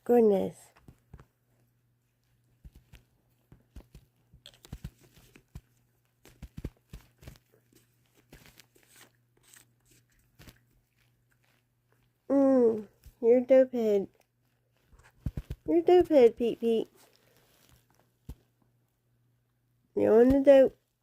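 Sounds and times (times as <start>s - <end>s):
cat chewing catnip: 1.0s - 12.3s.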